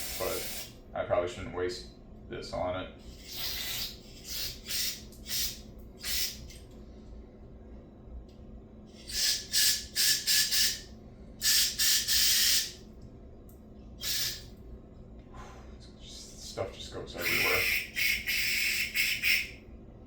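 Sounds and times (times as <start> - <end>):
aerosol spray hissing: 0.0 - 0.7
faint whistle from spray nozzle: 9.1 - 10.8, 11.4 - 12.7, 17.2 - 19.6.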